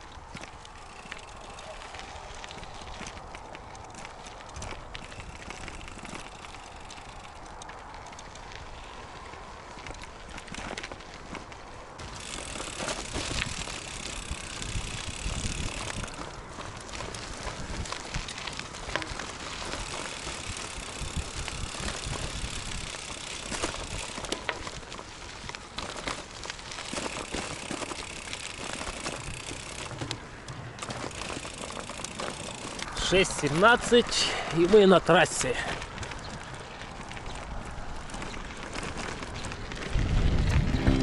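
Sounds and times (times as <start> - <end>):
bicycle tyres rolling: 0.0 - 41.0.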